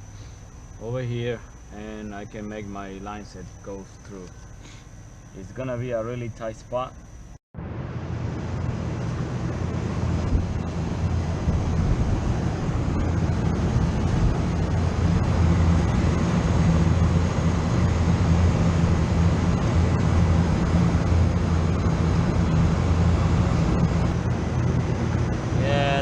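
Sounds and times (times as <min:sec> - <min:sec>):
refrigerant hissing: 0:00.0 - 0:07.0
machinery low hum: 0:00.0 - 0:26.0.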